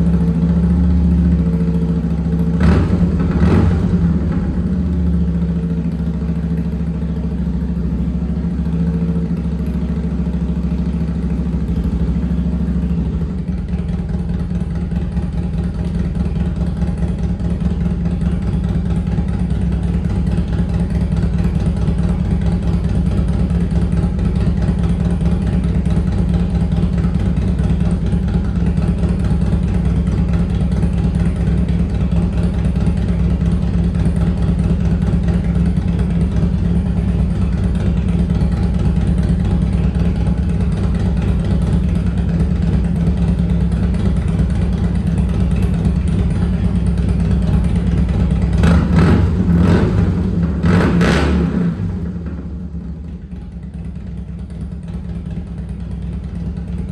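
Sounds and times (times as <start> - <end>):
motorcycle engine idling: 0.0 - 56.9
engine revving: 2.5 - 4.8, 48.4 - 52.6.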